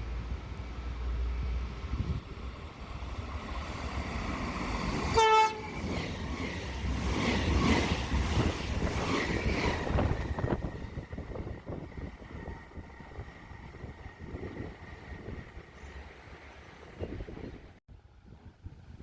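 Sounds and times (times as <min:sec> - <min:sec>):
train wheels rumbling on rails: 0:00.0 - 0:17.8
train horn blast: 0:05.1 - 0:05.8.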